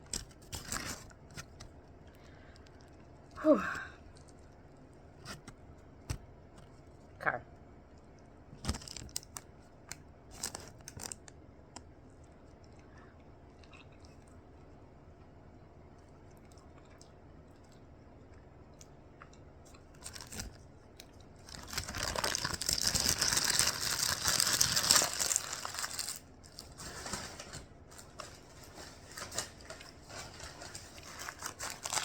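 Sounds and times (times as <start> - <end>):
paper wrapper crinkling and tearing: 0.0 - 1.8, 8.6 - 11.3, 20.0 - 20.6, 21.4 - 32.0.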